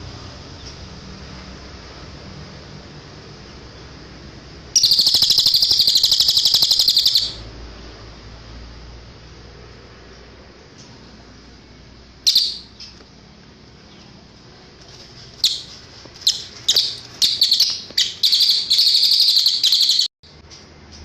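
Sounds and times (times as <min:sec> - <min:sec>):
bird singing high-pitched chirps: 0:04.8 - 0:07.5, 0:12.2 - 0:13.0, 0:15.4 - 0:20.1.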